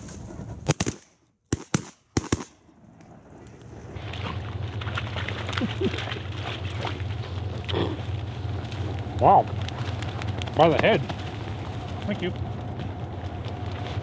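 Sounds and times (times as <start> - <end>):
shotgun blasts: 0.6 - 2.6
steady rushing noise: 3.0 - 14.0.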